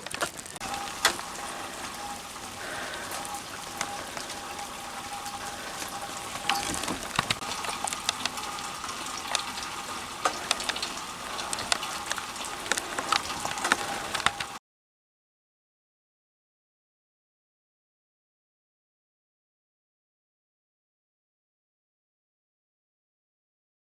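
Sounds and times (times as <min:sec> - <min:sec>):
sharp ticks of raindrops: 0:00.0 - 0:14.6
steady rain falling: 0:00.0 - 0:14.6.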